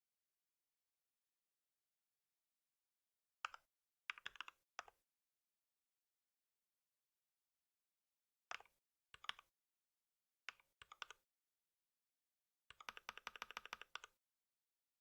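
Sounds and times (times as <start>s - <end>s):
typing on computer keyboard: 10.5s - 11.2s, 12.7s - 14.2s.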